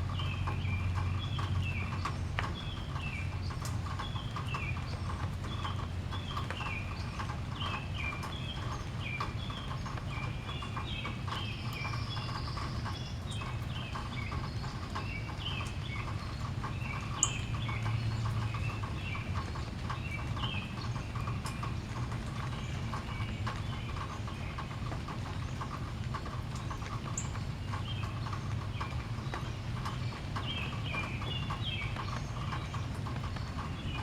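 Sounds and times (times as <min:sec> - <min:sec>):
light ticks: 0:00.0 - 0:34.0
small birds chirping: 0:00.0 - 0:34.0.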